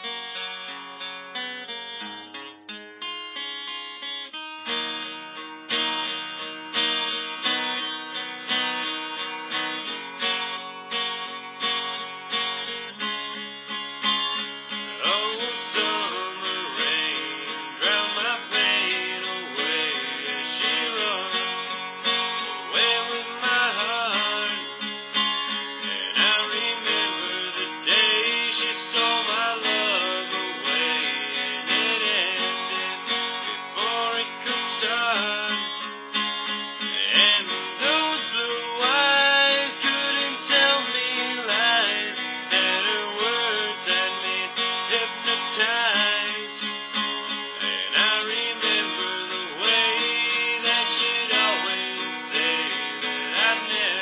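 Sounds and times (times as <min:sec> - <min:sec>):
acoustic guitar strummed and plucked: 0:00.0 - 0:54.0.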